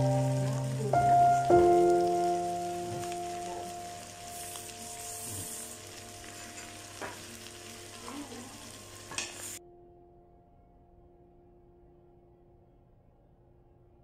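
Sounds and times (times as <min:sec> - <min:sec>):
cabbage sizzling in a frying pan: 0:00.0 - 0:09.6.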